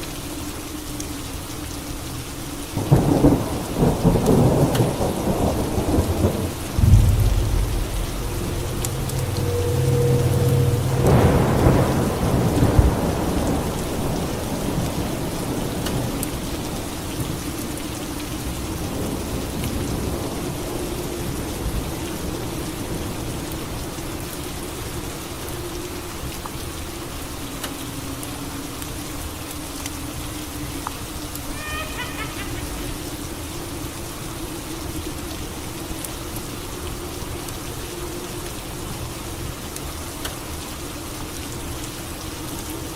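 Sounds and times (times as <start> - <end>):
steady rain: 0.0 - 42.9
thunderclap rumbling: 2.8 - 16.1.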